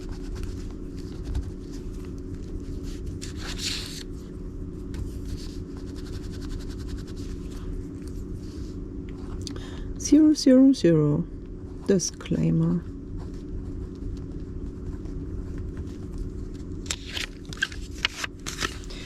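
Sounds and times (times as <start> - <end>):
paper rustling and scraping: 0.0 - 8.8, 13.2 - 19.0
low hum: 0.0 - 19.0.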